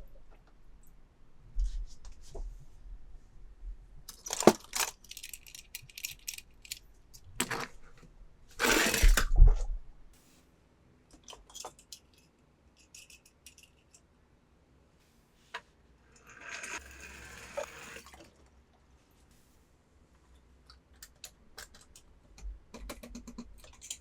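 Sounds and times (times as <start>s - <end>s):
plastic toy pieces clicking: 4.1s - 6.8s, 22.8s - 24.0s.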